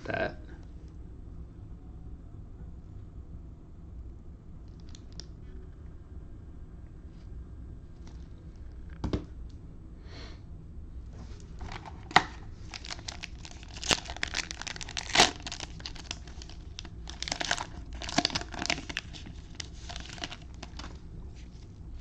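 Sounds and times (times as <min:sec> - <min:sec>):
foil wrapper crinkling: 0:11.5 - 0:21.7.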